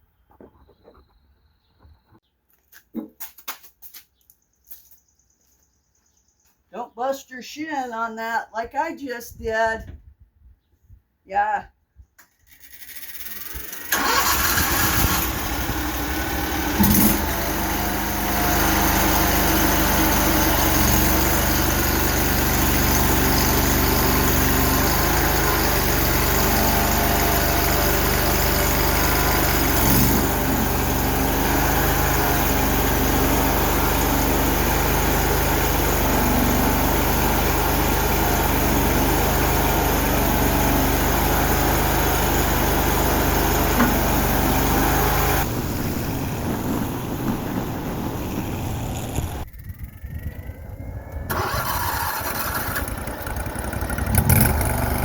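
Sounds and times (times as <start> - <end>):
small engine starting and running: 12.3 - 55.0.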